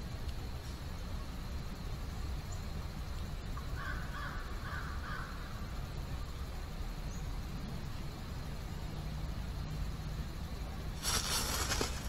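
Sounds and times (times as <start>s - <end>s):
harsh crow-like bird calls: 3.8s - 5.5s.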